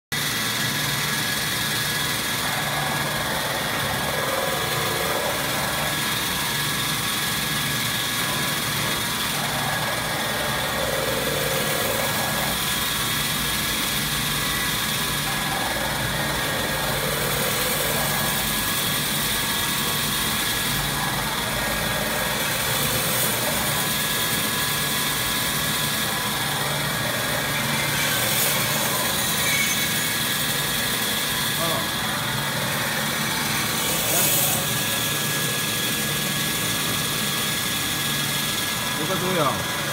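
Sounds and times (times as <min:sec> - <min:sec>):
band saw machine whine: 0:00.1 - 0:39.9
pulsing low hum: 0:01.0 - 0:29.4.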